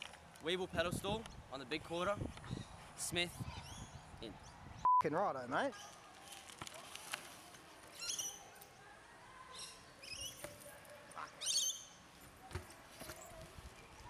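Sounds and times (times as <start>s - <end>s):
birds squeaky chirps: 2.4s - 2.8s, 3.4s - 4.6s, 7.9s - 8.6s, 9.5s - 10.6s, 11.2s - 12.0s.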